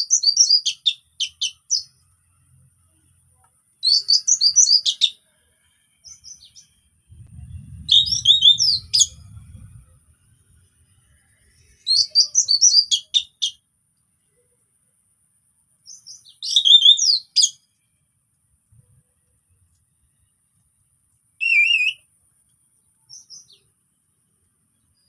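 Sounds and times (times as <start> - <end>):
thrush singing whistled notes: 0.0 - 2.0, 3.8 - 5.2, 6.0 - 13.6, 15.8 - 17.7, 21.4 - 22.1
low rumble: 7.0 - 11.9.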